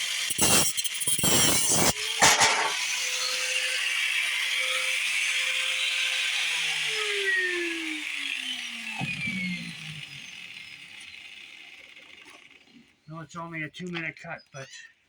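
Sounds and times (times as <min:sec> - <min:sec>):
grinder cutting: 0:00.0 - 0:13.0
grinder motor whining: 0:00.0 - 0:13.5.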